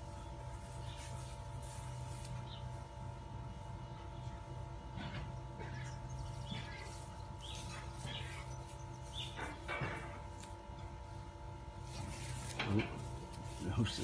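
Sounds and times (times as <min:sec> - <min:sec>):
small birds chirping: 0:00.0 - 0:10.0
steady hum: 0:00.0 - 0:14.0.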